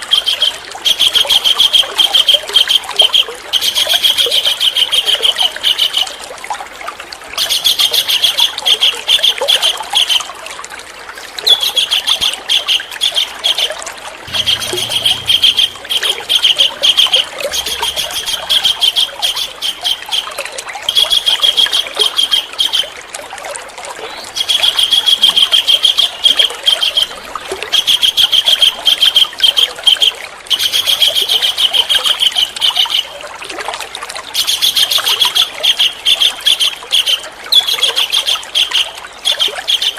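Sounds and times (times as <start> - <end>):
songbird rattling trills: 14.2 - 22.8.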